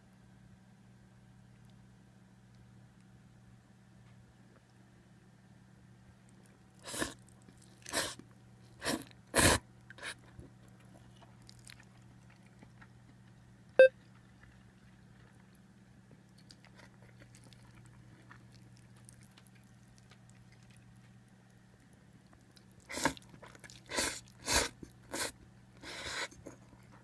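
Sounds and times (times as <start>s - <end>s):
noisy eating mouth sounds: 6.3s - 27.0s.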